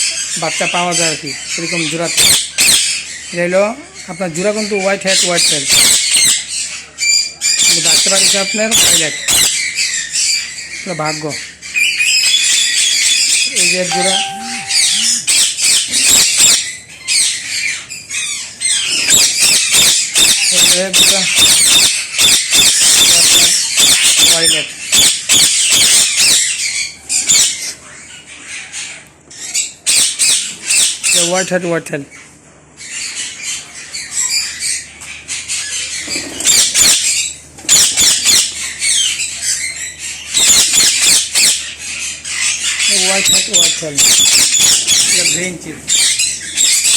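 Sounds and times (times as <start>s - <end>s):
parakeets squawking and screeching: 0.0s - 46.9s.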